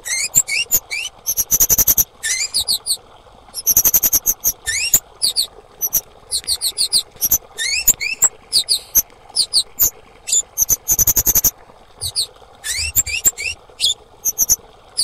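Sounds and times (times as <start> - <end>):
bird high chip notes: 12.1 - 14.6.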